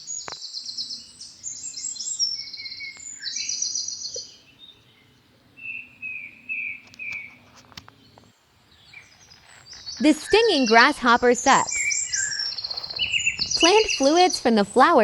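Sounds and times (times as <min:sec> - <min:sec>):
small birds trilling: 0:00.0 - 0:15.0
bird whistled notes: 0:09.9 - 0:14.5.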